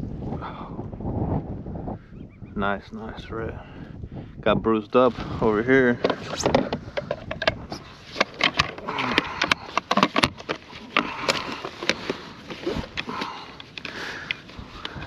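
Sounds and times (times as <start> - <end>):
fish and gear knocking and rustling: 6.0 - 15.0.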